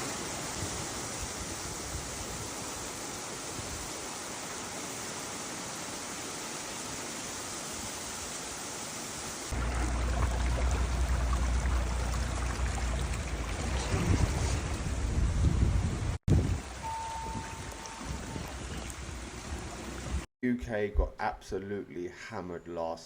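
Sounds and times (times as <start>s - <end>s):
heavy rain hissing: 0.0s - 20.3s
deep low rumble: 9.6s - 16.2s.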